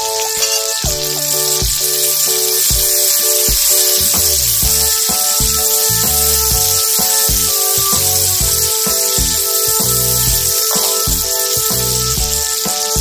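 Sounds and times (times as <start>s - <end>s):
background music with beat: 0.0s - 13.0s
onions sizzling in hot oil: 0.0s - 13.0s.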